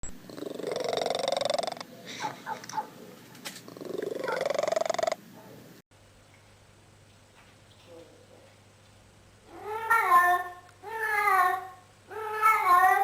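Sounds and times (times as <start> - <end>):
cat rattling purr-like call: 0.3 - 1.8, 3.7 - 5.2, 9.5 - 13.0.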